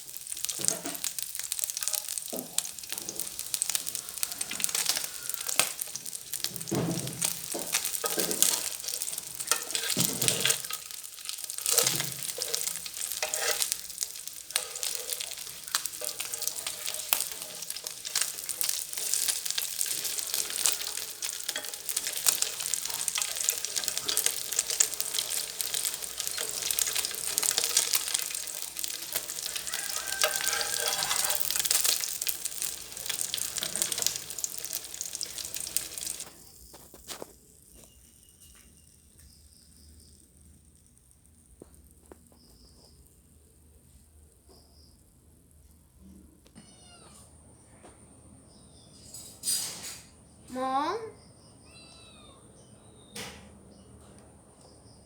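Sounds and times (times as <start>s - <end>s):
fish frying in hot oil: 0.0s - 43.4s.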